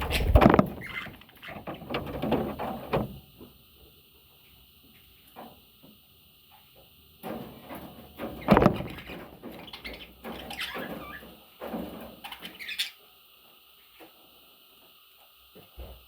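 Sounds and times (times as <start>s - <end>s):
knocks and scraping on wood: 0.0s - 3.2s.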